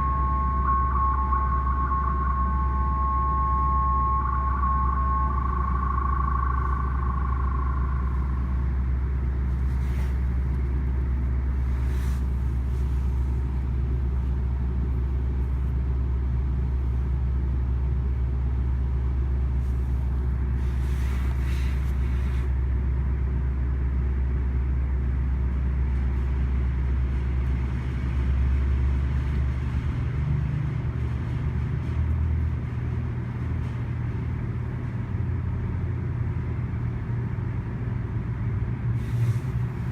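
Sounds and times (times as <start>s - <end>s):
high steady tone: 0.0s - 10.2s
diesel locomotive rumble: 0.0s - 39.9s.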